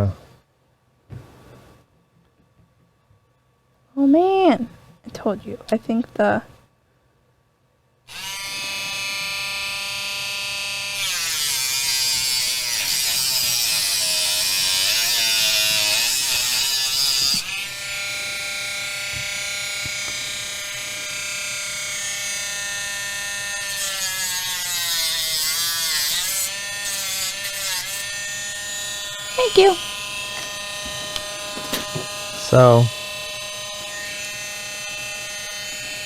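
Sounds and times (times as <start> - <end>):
rotary tool whining: 8.1 - 36.0.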